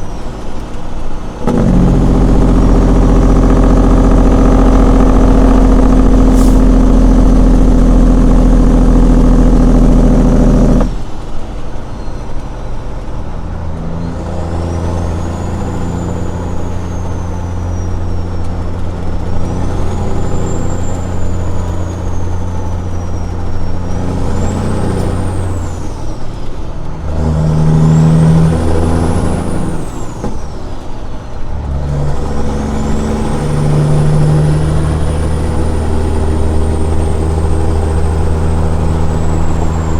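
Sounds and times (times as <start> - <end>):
diesel truck engine running: 0.0 - 39.9
turbo whistle: 1.5 - 9.1, 14.0 - 26.0, 31.9 - 39.9.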